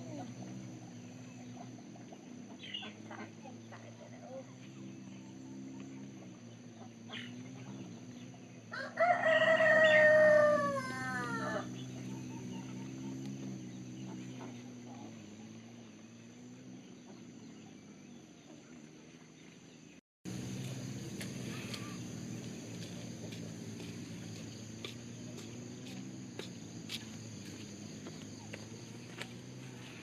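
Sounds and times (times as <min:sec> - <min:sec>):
steady low hum: 0:00.0 - 0:30.0
rooster crowing: 0:08.7 - 0:11.8.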